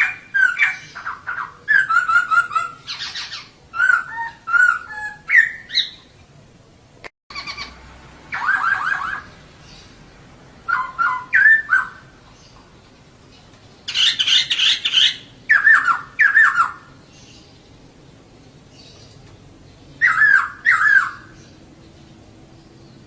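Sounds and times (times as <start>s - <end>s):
laughingthrush calling: 0.0s - 6.1s, 7.3s - 9.9s, 10.6s - 12.6s, 13.8s - 17.5s, 20.0s - 21.6s.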